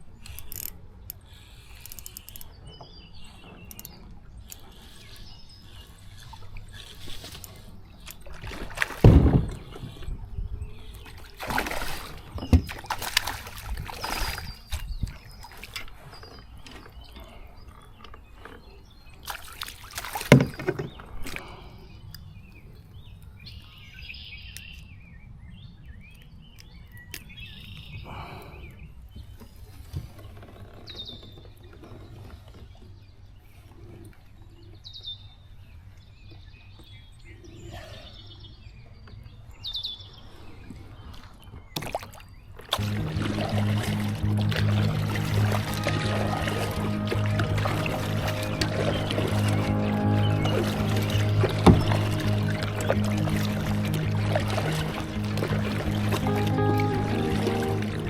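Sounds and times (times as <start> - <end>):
water splashing around kayak: 0.0 - 22.4, 40.4 - 58.0
high bird calls: 42.8 - 58.0.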